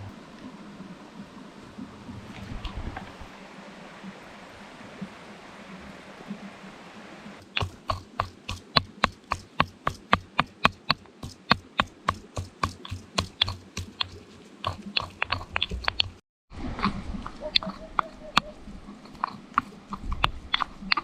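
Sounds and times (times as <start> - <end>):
knife chopping on cutting board: 7.6 - 16.2.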